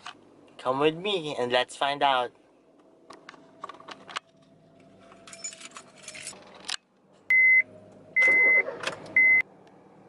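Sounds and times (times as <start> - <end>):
keys jangling: 5.0 - 6.4.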